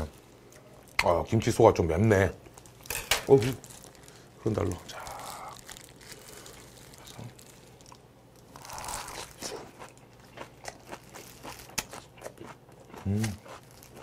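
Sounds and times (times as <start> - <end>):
close-up crunchy chewing: 3.5 - 14.0.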